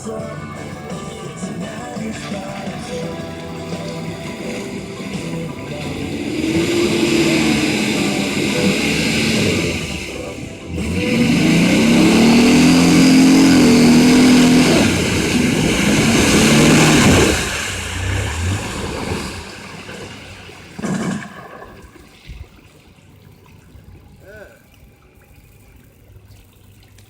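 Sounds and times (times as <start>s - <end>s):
truck engine revving: 0.0s - 21.6s.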